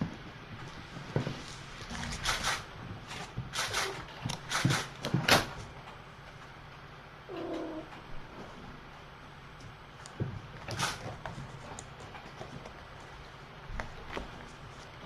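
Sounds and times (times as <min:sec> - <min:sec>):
cat mewing: 0:07.3 - 0:08.0.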